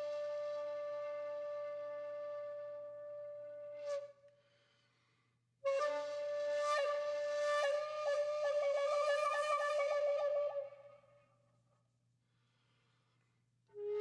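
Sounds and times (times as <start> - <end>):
flute long note with trill: 5.7 - 11.0, 13.8 - 14.0.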